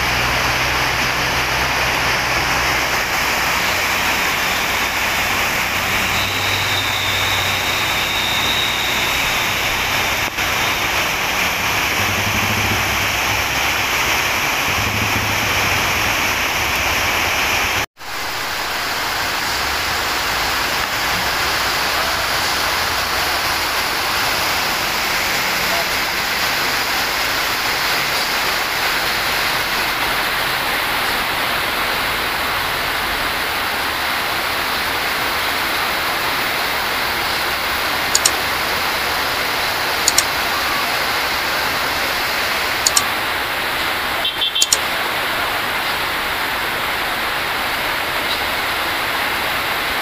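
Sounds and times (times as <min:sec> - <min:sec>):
heavy rain on a road: 0:00.0 - 0:50.0
mouse click sound effects: 0:38.2 - 0:38.4, 0:40.1 - 0:40.3, 0:42.8 - 0:43.1, 0:44.6 - 0:44.8.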